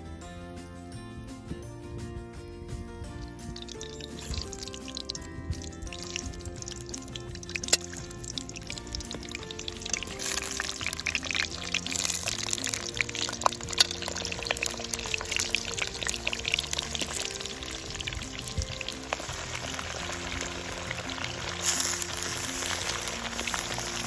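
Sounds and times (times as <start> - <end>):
background music: 0.0 - 24.0
meat sizzling in a cauldron: 3.1 - 24.0
sharp crackles: 3.1 - 24.0.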